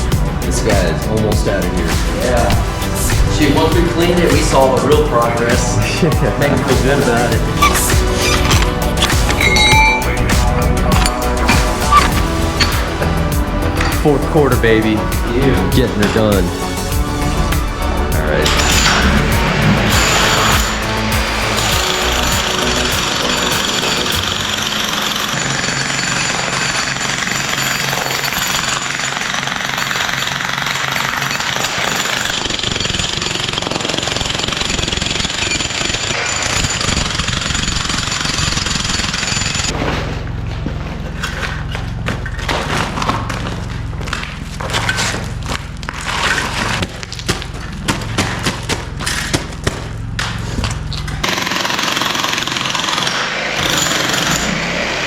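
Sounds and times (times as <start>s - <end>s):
jackhammer breaking concrete: 18.2s - 55.0s.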